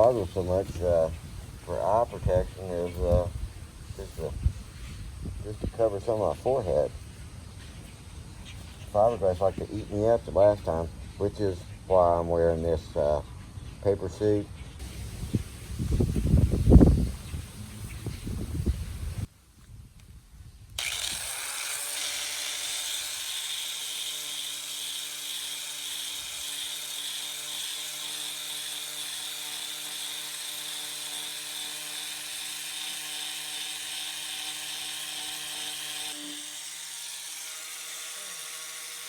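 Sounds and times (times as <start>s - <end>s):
electric power sander running: 20.8s - 39.0s.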